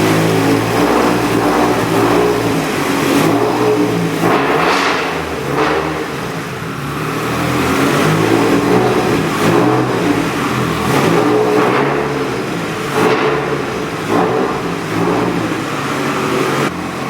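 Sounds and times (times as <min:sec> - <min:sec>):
turbocharged car engine revving: 0:00.0 - 0:17.0.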